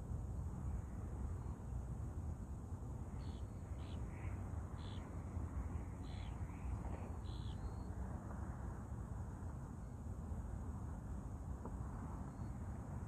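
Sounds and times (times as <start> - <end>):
faint high bird calls: 3.2 - 5.2, 6.0 - 7.9.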